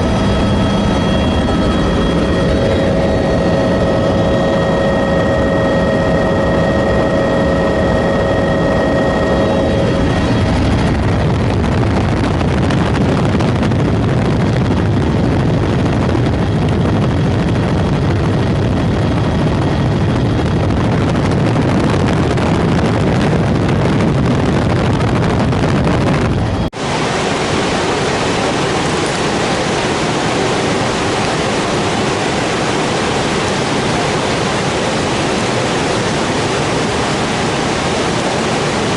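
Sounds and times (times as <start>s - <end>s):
loud rushing noise: 0.0s - 14.4s, 20.8s - 38.9s
helicopter whine: 0.0s - 38.9s
waterfall roaring: 26.8s - 38.9s.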